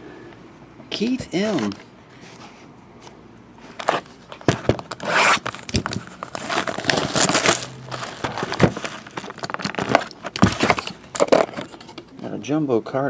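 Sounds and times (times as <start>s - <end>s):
wrapper crinkling and tearing: 4.8s - 11.7s.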